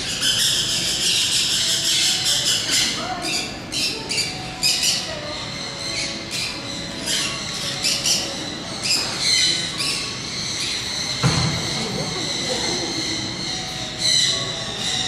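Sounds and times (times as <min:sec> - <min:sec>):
birds chirping and squawking: 0:00.0 - 0:15.0.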